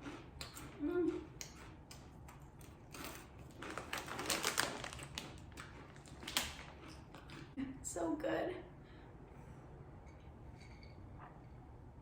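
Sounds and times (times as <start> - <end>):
crunching tortilla chips: 2.9 - 7.5.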